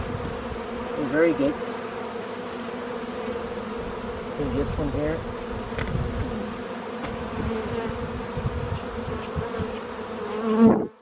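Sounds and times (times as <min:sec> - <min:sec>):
honeybees buzzing: 0:00.0 - 0:11.0
low rumbling on microphone: 0:03.8 - 0:06.5.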